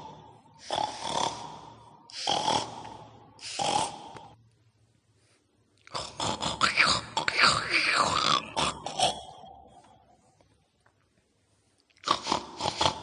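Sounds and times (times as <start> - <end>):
pig-like snorts: 0.0 - 4.4, 5.9 - 9.8, 12.0 - 13.0.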